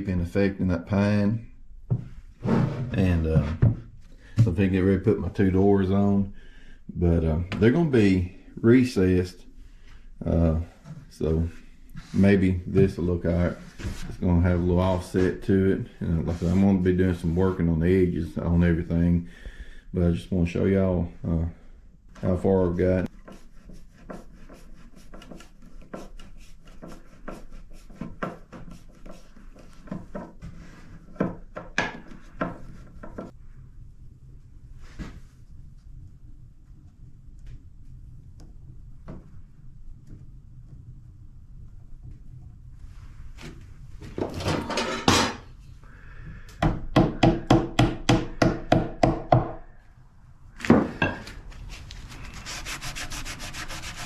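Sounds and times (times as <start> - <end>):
rubbing strokes on wood: 23.0 - 31.4, 51.6 - 54.0
wooden boards knocking and rubbing: 29.8 - 33.3
hammer tapping wooden plugs: 46.6 - 49.6.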